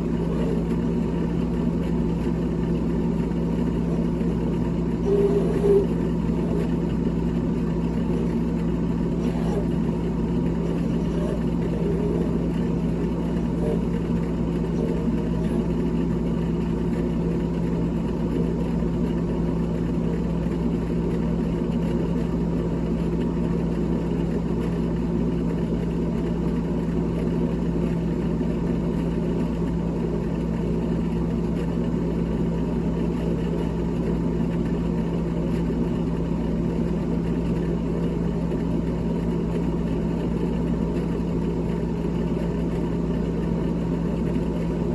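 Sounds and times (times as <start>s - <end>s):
small electric motor whirring: 2.3s - 15.8s.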